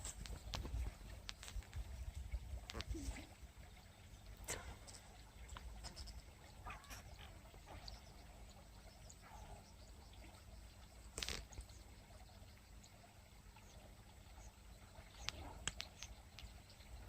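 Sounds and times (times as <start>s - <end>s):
small ticks: 0.0s - 1.8s, 2.6s - 3.2s, 4.4s - 8.0s, 10.8s - 12.9s, 14.4s - 17.0s
faint low outdoor rumble: 0.0s - 17.0s.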